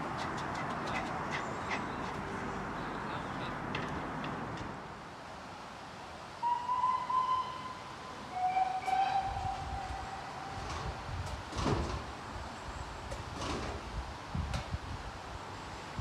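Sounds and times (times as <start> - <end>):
train rumbling: 0.0 - 5.2, 6.3 - 16.0
locomotive horn: 6.4 - 11.0.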